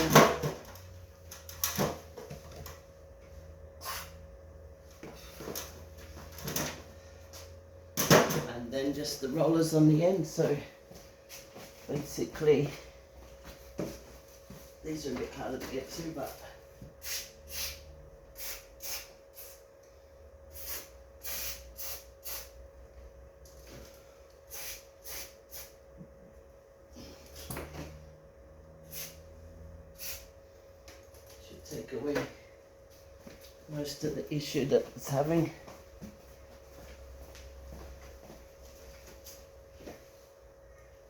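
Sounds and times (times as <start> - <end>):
faint steady hum: 0.0 - 41.0
aerosol spray hiss: 18.4 - 19.6, 20.6 - 22.5, 24.5 - 25.8, 30.0 - 30.3.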